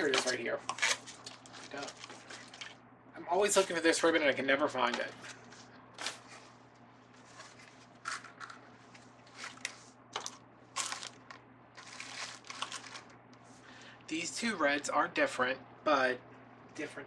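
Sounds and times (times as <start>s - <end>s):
ribbon crinkling and rustling: 0.0s - 2.8s, 5.0s - 13.2s.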